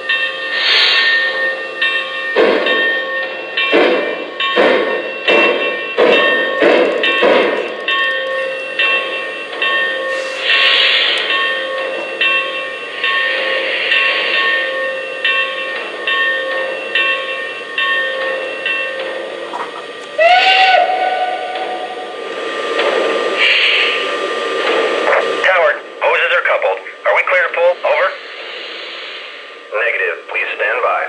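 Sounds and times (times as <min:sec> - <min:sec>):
steam hissing: 0:00.0 - 0:25.5, 0:28.1 - 0:30.4
steam locomotive chuffing: 0:00.0 - 0:31.0
steam whistle: 0:08.4 - 0:15.3, 0:20.0 - 0:22.2.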